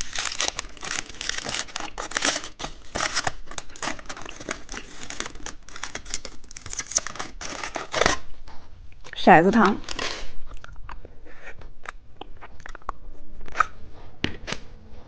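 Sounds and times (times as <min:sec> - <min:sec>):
plastic packaging crinkling and tearing: 0:00.0 - 0:08.4, 0:09.6 - 0:10.8.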